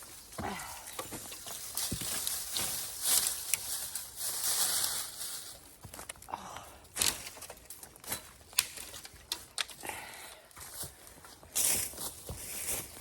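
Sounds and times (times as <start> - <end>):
twigs and leaves rustling: 0.0 - 13.0.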